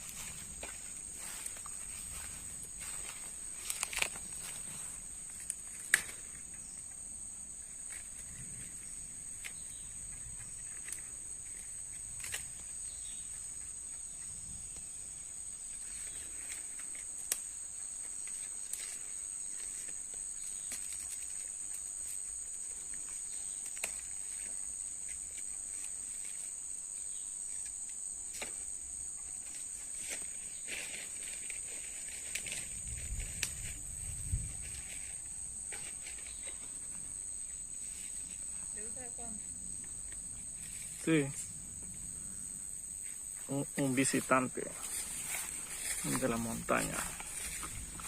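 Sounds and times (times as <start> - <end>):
faint clicks and rustles: 0.0 - 6.6, 29.4 - 42.1
high-pitched insect chorus: 0.0 - 48.0.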